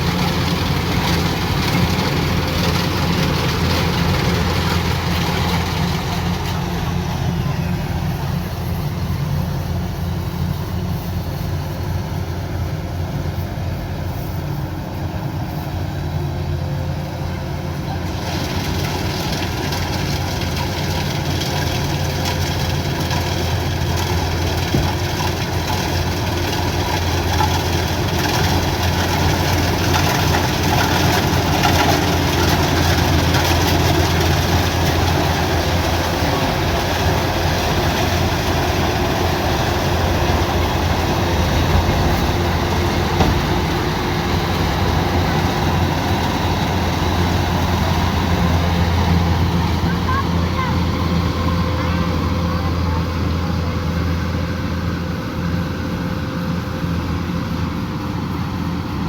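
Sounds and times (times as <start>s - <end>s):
diesel engine humming: 0.0s - 59.0s
noisy mechanical sound: 0.0s - 59.0s.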